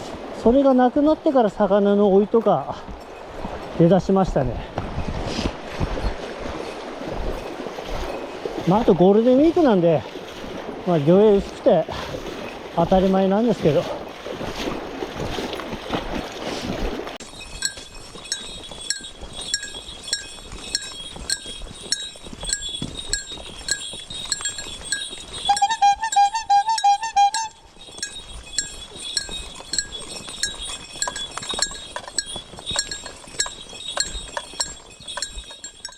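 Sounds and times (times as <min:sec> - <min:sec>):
running stream water: 0:00.0 - 0:35.9
bell-like tinkling ticks: 0:17.2 - 0:35.9
short warbling tone: 0:25.4 - 0:28.3.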